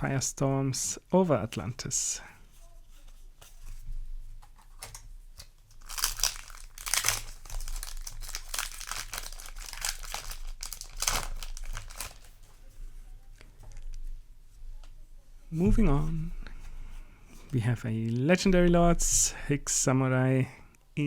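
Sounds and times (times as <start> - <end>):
foil wrapper tearing and crinkling: 5.7 - 12.5.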